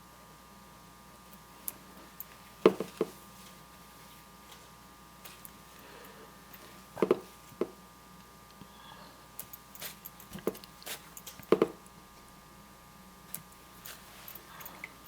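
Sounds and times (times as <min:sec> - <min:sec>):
faint room hum: 0:00.0 - 0:15.0
painting tools tapping and clicking: 0:10.3 - 0:11.8.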